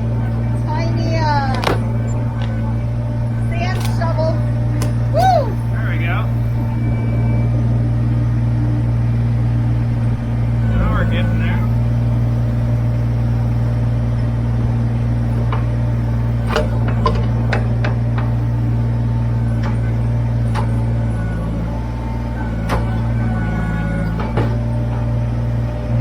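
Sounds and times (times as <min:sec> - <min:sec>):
tractor diesel engine running: 0:00.0 - 0:26.0
backhoe bucket knocks and clanks: 0:01.4 - 0:02.8, 0:15.4 - 0:18.7, 0:24.0 - 0:25.0.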